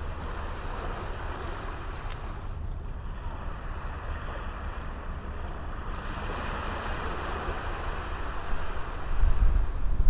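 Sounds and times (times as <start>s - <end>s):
wind rumbling on microphone: 3.2s - 10.0s.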